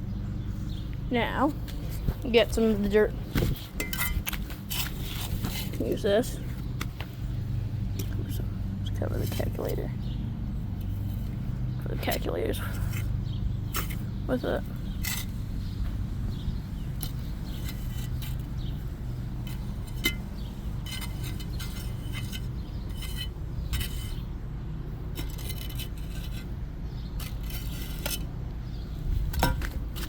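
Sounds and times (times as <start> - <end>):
steady low rumble: 0.0 - 30.0
hand tool scraping dirt: 2.6 - 6.6, 10.8 - 24.3, 25.1 - 30.0.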